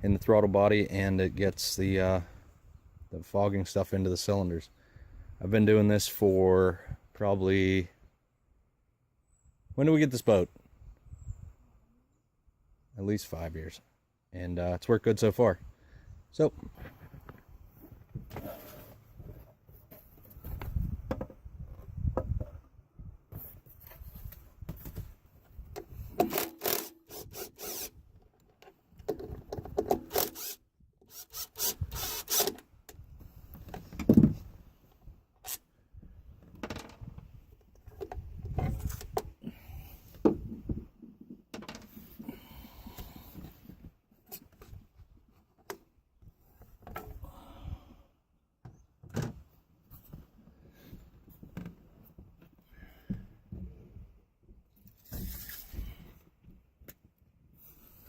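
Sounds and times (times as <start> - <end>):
rubbing and scraping: 26.2 - 28.0.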